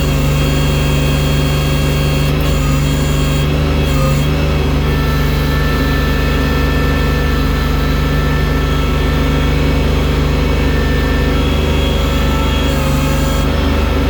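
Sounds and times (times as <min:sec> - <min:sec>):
loader engine running: 0:00.0 - 0:14.0.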